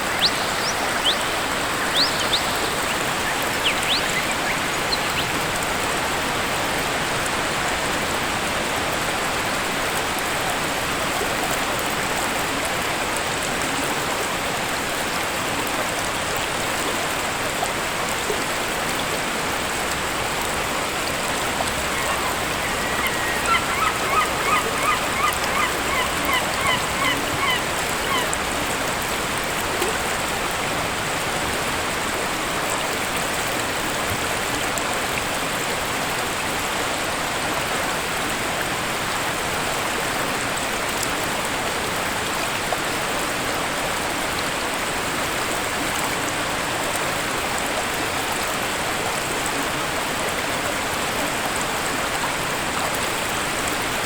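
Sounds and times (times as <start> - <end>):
bird honking calls: 0.0 - 5.5, 21.4 - 28.7
waterfall rushing: 0.0 - 35.2.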